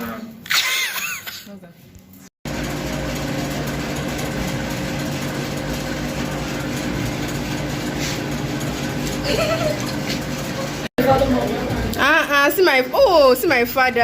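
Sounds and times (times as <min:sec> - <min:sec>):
motor humming: 0:02.4 - 0:12.2.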